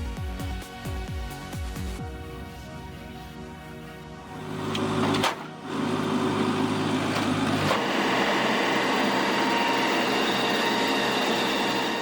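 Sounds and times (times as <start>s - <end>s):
machinery running: 4.0s - 12.0s.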